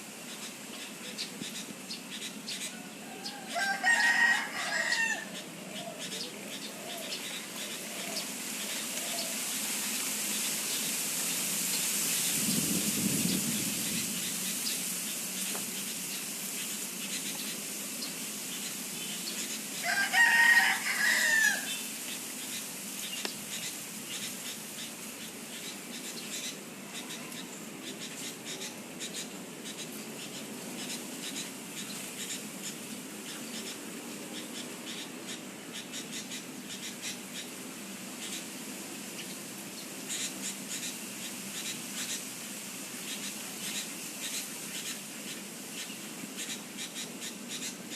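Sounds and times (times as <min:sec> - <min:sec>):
steady high hiss: 0:00.0 - 0:47.9
rooster crowing: 0:02.7 - 0:07.2, 0:19.8 - 0:21.8
faint ticks: 0:23.0 - 0:23.4.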